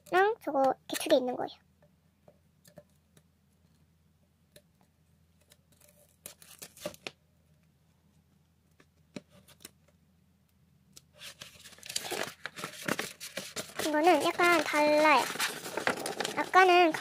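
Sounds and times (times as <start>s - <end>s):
paper poster rustling and crinkling: 11.1s - 17.0s.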